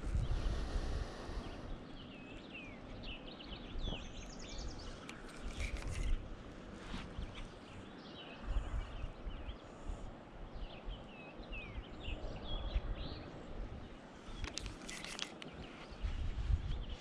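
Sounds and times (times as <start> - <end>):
low microphone rumble: 0.0 - 1.8
birds chirping: 0.0 - 17.0
sharp clicks: 14.4 - 15.7.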